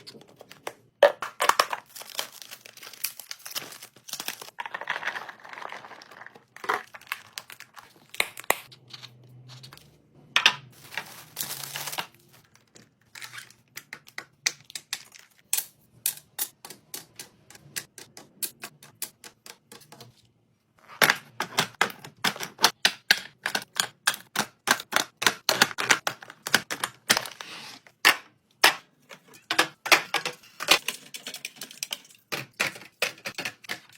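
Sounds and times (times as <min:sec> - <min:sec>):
packaging rustling: 0:01.4 - 0:08.2, 0:10.8 - 0:12.7
containers clicking and tapping: 0:28.6 - 0:33.9.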